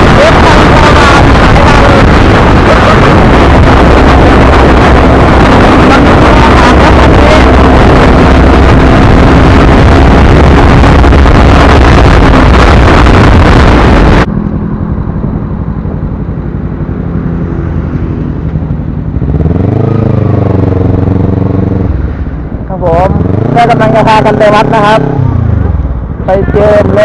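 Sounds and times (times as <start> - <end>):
wind noise on microphone: 0.0 - 16.1
motorcycle engine running: 0.0 - 27.0.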